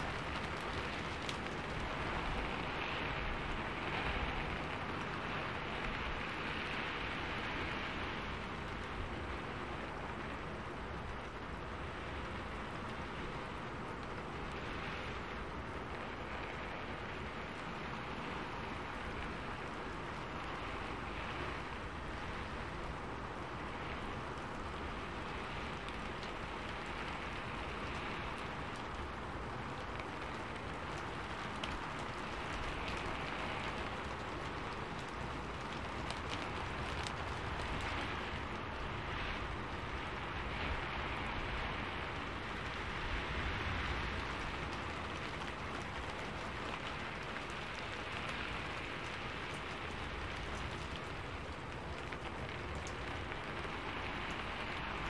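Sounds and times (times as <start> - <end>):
raindrop hits: 0.0 - 55.0
steady rain falling: 0.0 - 55.0.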